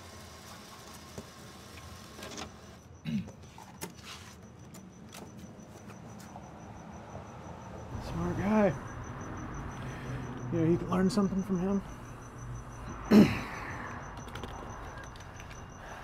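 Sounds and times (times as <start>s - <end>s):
crickets chirping: 2.5s - 16.0s
keypad clicks and beeps: 3.5s - 6.6s, 11.2s - 16.0s
low traffic rumble: 5.6s - 16.0s.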